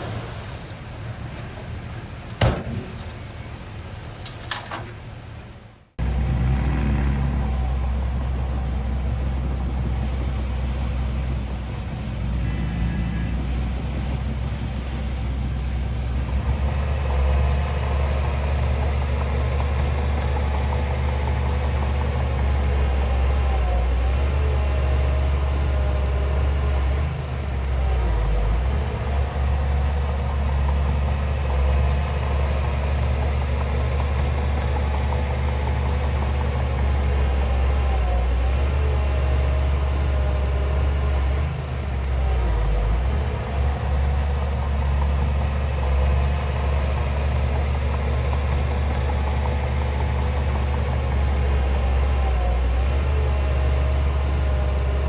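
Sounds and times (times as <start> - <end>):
outdoor hiss: 0.0 - 6.0, 10.0 - 16.3
heavy diesel engine droning: 0.0 - 55.0.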